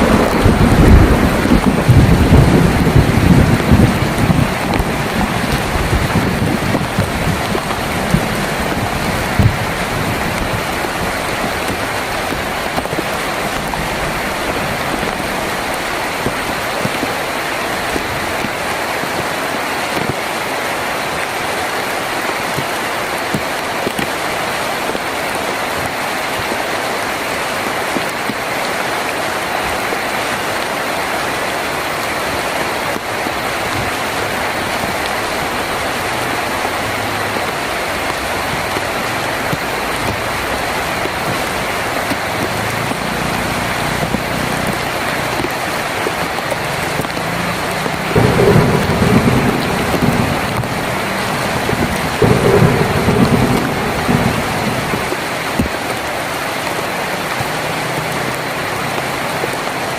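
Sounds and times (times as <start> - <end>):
thunder rumble: 0.0 - 18.7, 31.9 - 56.5
heavy rain on a tin roof: 0.0 - 59.9.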